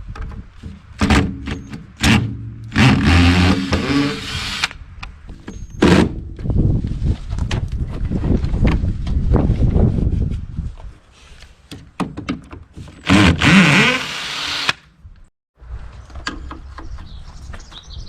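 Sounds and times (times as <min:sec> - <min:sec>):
sharp knocks and clunks: 0:00.0 - 0:04.0, 0:11.7 - 0:13.4.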